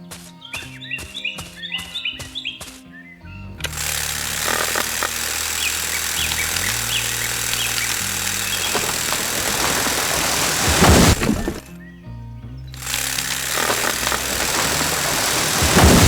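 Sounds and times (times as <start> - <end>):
farm machine engine running: 3.6 - 11.7, 12.8 - 16.0
loud rushing noise: 13.6 - 16.0.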